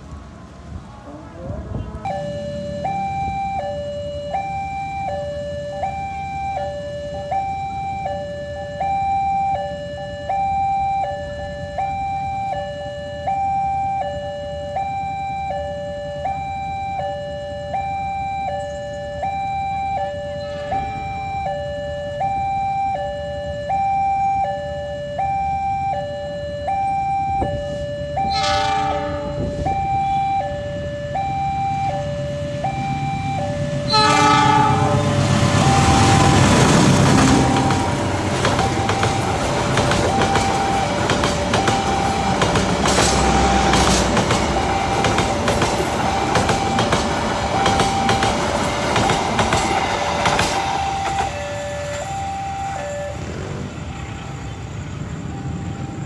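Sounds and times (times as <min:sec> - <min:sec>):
two-tone crossing alarm: 0:01.1 - 0:56.0
train horn blast: 0:20.4 - 0:21.1, 0:28.2 - 0:30.3, 0:33.9 - 0:38.0.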